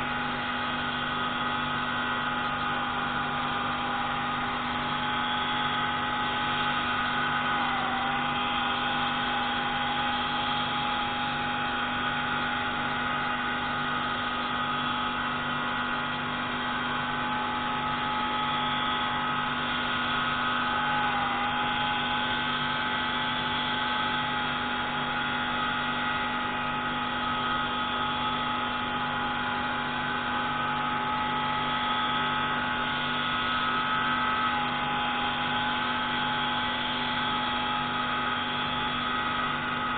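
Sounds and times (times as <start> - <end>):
pneumatic grinding tool whining: 0.0 - 39.9.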